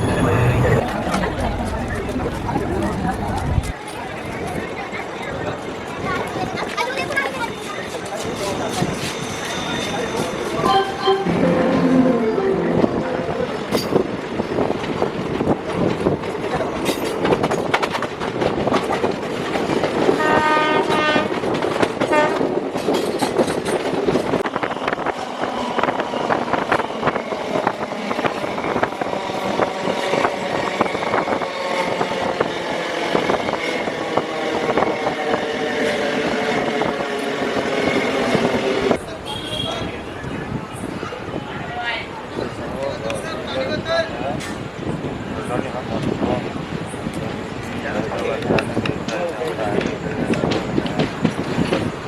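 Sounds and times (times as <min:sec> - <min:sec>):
train coaches clattering: 0:00.0 - 0:52.0
train horn: 0:10.6 - 0:13.5, 0:20.2 - 0:21.4, 0:22.0 - 0:22.6, 0:39.2 - 0:39.9.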